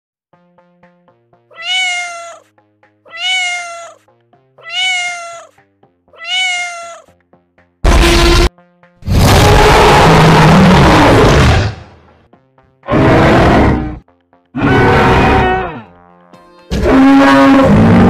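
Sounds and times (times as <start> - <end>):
soft background music: 0.3 - 7.8, 8.4 - 11.2, 11.8 - 18.0
cat meowing: 1.5 - 2.5, 3.1 - 4.0, 4.6 - 7.1.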